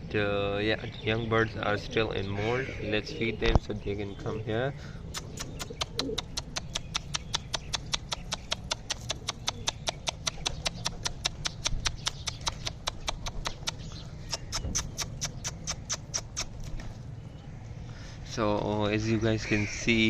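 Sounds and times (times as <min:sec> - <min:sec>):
pigeons pecking grain: 0:04.8 - 0:17.3.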